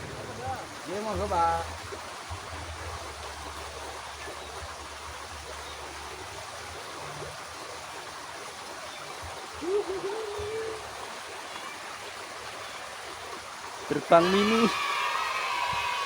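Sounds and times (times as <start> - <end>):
water rushing in a ditch: 0.0 - 16.0.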